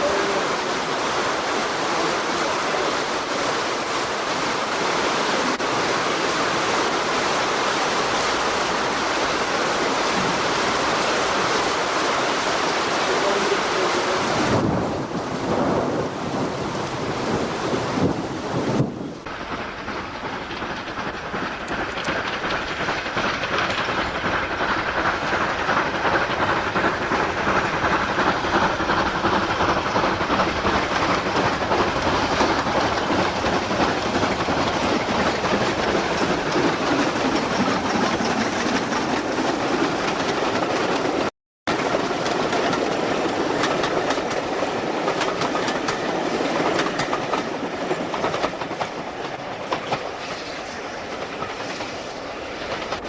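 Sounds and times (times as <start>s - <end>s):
steam locomotive running: 0.0s - 53.0s
steam hiss: 19.2s - 41.2s, 41.9s - 53.0s.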